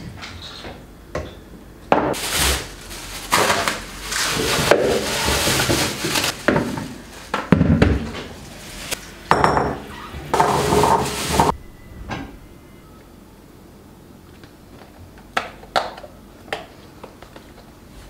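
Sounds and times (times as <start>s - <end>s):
scraping and rustling: 2.1s - 9.2s, 10.0s - 11.6s
dishes clattering: 9.3s - 12.3s.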